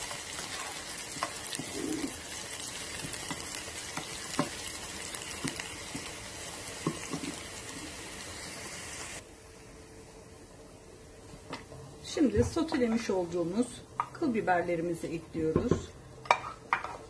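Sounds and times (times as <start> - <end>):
peppers sizzling in oil: 0.0 - 9.2.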